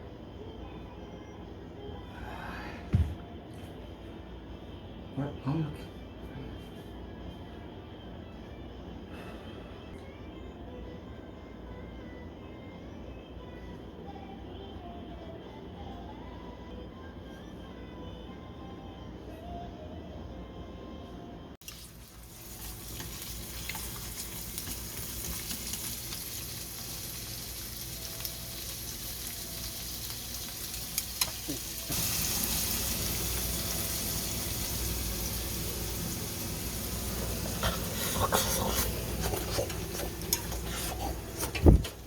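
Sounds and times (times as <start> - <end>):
food sizzling in a pan: 21.6 - 41.4.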